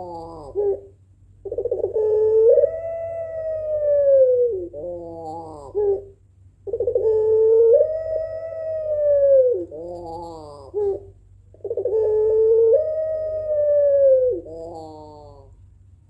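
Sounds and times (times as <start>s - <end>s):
dove cooing: 0.0s - 15.6s.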